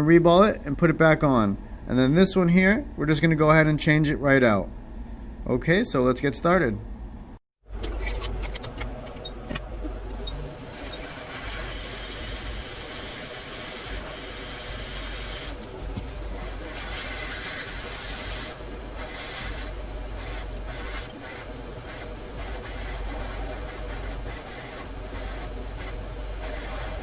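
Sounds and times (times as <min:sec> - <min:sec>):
hot air blower hissing: 0:09.7 - 0:27.0.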